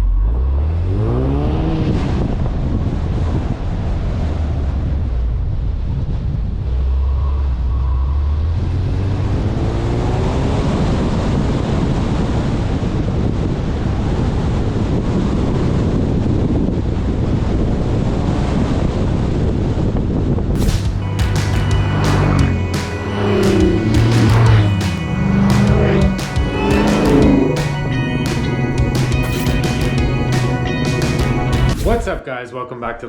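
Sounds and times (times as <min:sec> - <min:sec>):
car engine pulling hard: 0:00.0 - 0:14.9, 0:20.6 - 0:32.1
wind noise on microphone: 0:01.0 - 0:21.1
steady rumble: 0:20.5 - 0:32.2.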